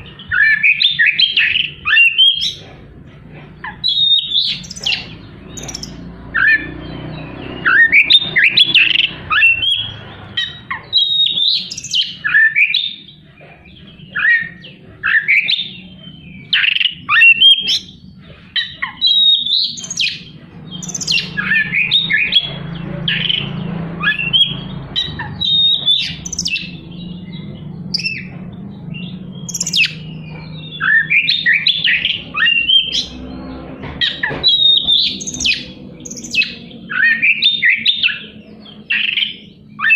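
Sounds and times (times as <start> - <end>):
bird singing harsh whistles: 3.7 - 13.1, 18.6 - 28.3, 29.0 - 33.2, 34.0 - 38.3.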